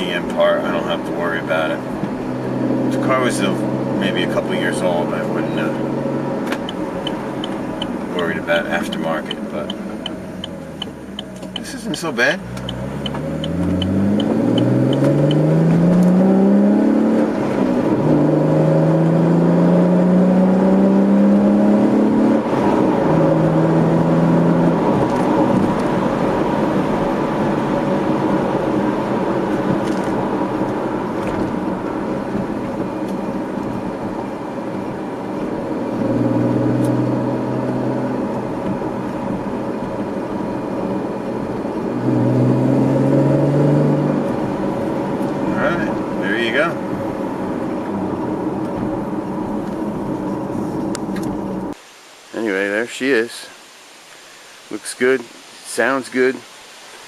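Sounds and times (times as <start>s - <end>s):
car engine revving through gears: 0.0s - 51.8s.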